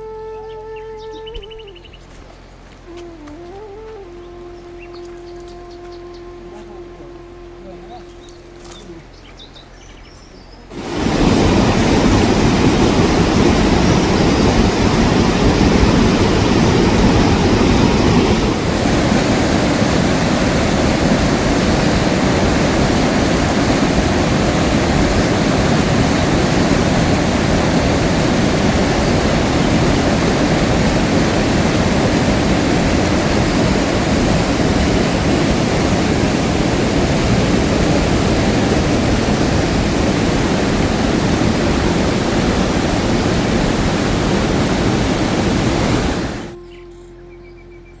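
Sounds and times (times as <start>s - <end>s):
heavy rain falling: 10.7s - 46.6s.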